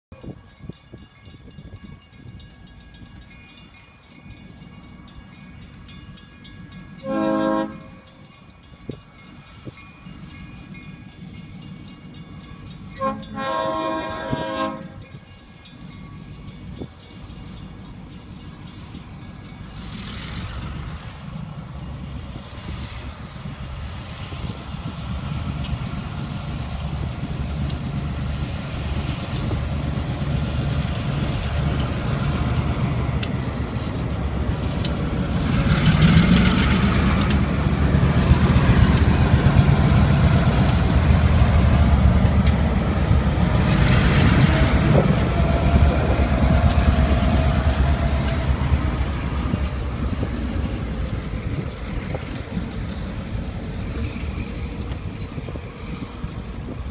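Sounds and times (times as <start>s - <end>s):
diesel locomotive engines rumbling: 0.1s - 56.9s
wheels clicking: 28.9s - 56.9s.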